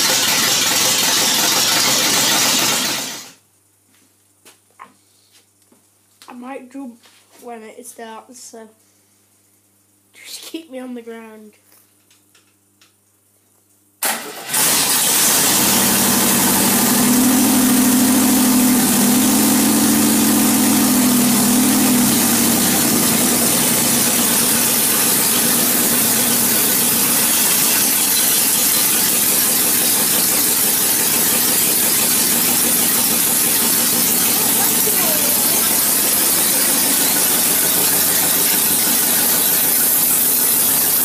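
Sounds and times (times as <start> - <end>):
car engine starting and idling: 0.0 - 3.4, 14.0 - 41.0.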